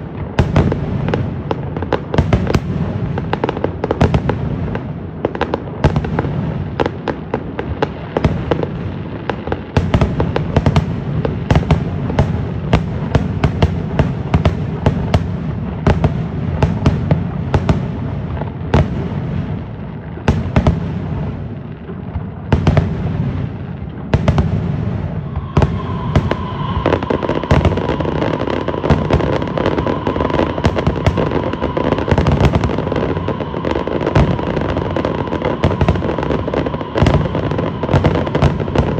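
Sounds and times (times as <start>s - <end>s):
fireworks cracks and bangs: 0.0s - 38.9s
steady high tone: 24.9s - 38.9s.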